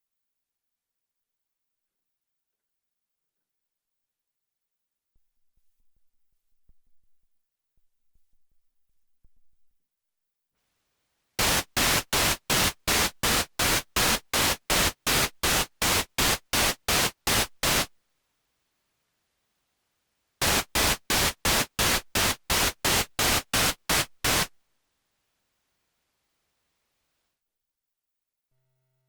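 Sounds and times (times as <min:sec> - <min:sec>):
synthesizer white noise bursts: 0:11.4 - 0:17.9, 0:20.4 - 0:24.6.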